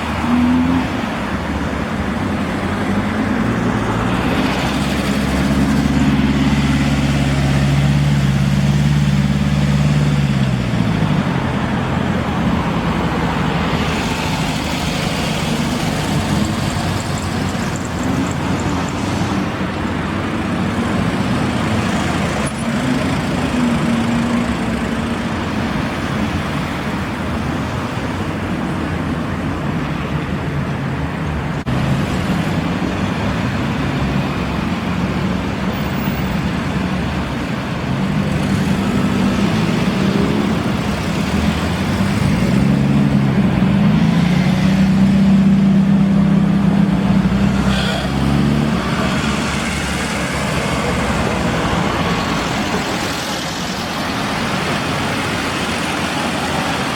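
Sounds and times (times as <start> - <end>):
car engines driving by: 0.0 - 56.9
road traffic noise: 0.0 - 56.9
engine revving: 3.4 - 11.6, 38.1 - 56.9.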